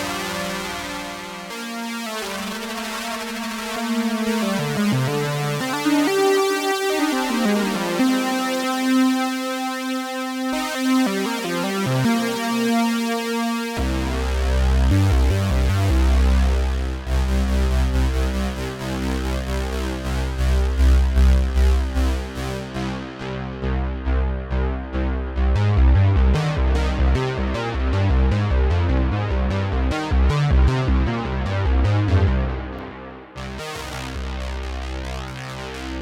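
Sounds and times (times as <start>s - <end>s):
pulsing deep bass: 13.8s - 36.0s.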